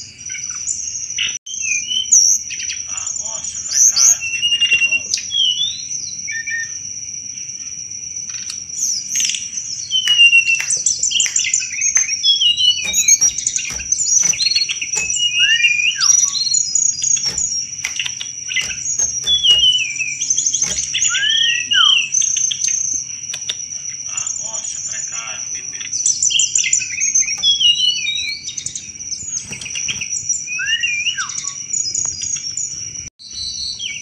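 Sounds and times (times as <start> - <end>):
bird singing chattering trills: 8.4 - 23.7.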